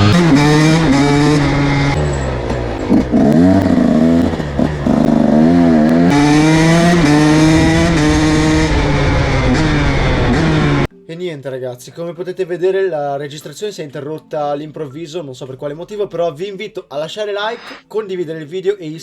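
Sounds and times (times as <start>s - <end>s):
two-stroke motocross engine revving: 0.0s - 10.9s.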